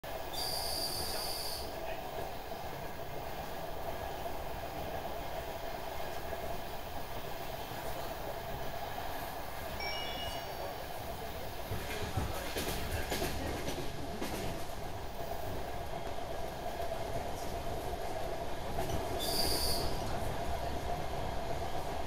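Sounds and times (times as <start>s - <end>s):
train rumble at speed: 0.0s - 22.0s
faint short high tones: 9.8s - 10.8s
high steady tone: 9.8s - 10.9s.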